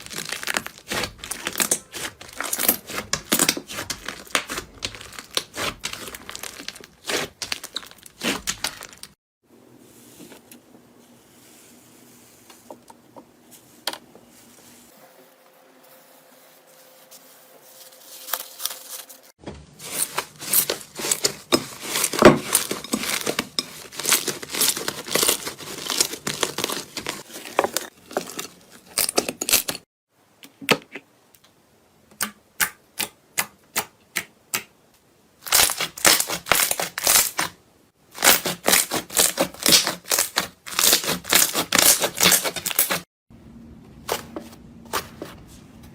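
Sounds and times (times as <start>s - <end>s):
slime crackling and popping: 0.0s - 9.1s.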